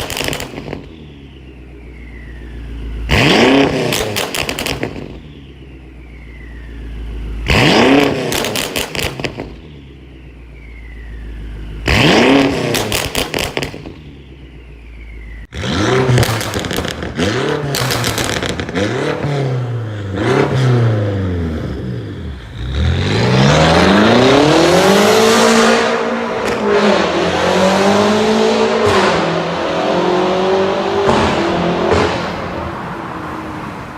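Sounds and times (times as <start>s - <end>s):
engine revving: 2.0s - 5.4s, 6.9s - 9.8s, 11.4s - 14.1s, 15.2s - 33.2s.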